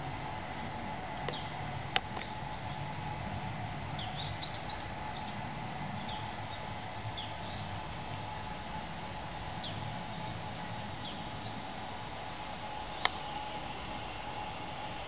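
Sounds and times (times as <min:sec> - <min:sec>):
steady background hum: 0:00.0 - 0:15.0
small birds chirping: 0:01.2 - 0:03.2, 0:03.9 - 0:08.3, 0:09.5 - 0:11.8.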